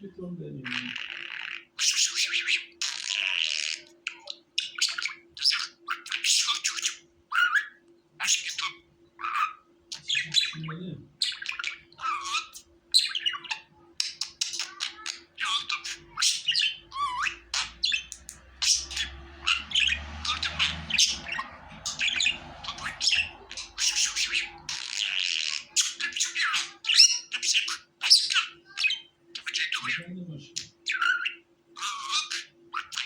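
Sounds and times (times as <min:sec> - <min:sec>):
budgerigars chattering: 0:00.6 - 0:33.0.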